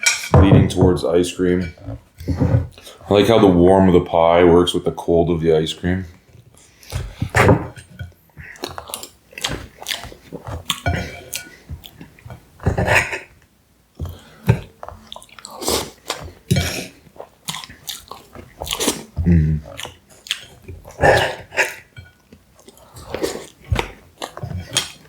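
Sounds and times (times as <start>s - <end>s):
chewing and mouth sounds: 8.4s - 12.2s, 14.0s - 25.0s.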